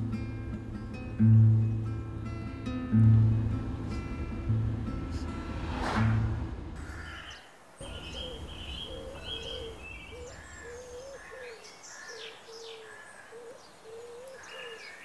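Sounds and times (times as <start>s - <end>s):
higher bird chirps and whistles: 7.0s - 11.6s.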